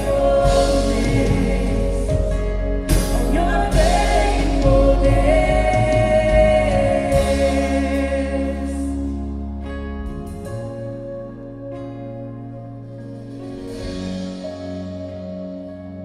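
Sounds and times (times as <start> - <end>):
worship band with singers: 0.0 - 10.0.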